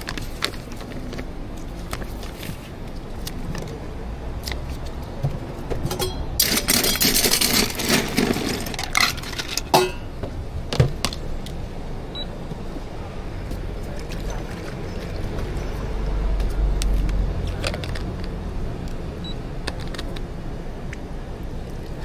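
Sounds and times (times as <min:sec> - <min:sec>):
utensils clicking and knocking: 0:05.8 - 0:10.1.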